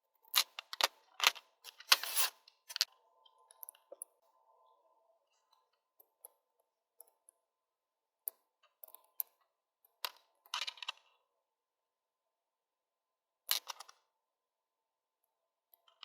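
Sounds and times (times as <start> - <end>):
small parts clicking and tapping: 0.1 - 4.2, 8.2 - 11.2, 13.5 - 14.0, 15.8 - 16.0.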